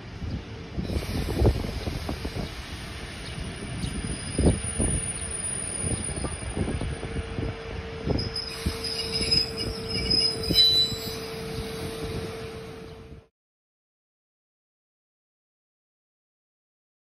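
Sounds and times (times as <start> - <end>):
steady train hum: 0.0 - 13.3
high wheel squeal: 8.1 - 12.8.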